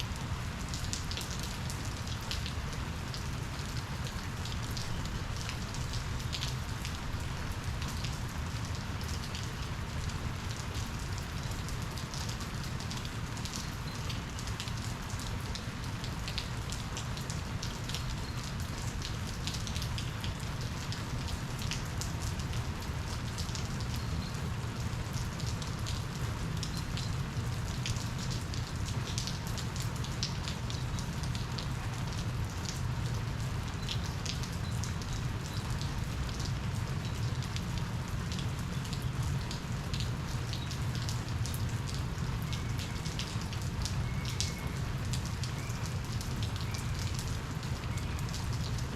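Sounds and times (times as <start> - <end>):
rain drops ticking on a surface: 0.0 - 48.9.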